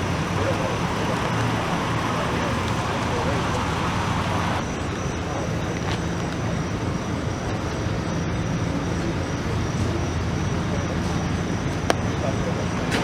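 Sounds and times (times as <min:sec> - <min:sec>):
car engine hum: 0:00.0 - 0:05.0
road noise: 0:00.0 - 0:13.0.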